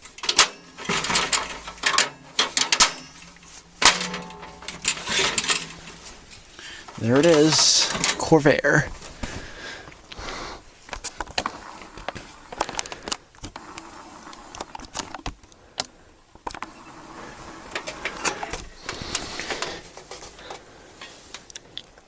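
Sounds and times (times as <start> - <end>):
metal fan being handled: 0.0 - 9.5.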